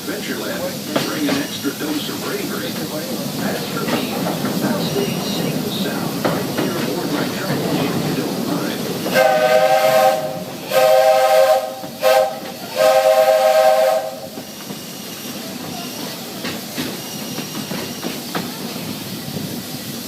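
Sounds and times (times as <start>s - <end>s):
train rolling noise: 0.0s - 20.0s
steam locomotive chime whistle: 9.1s - 16.2s.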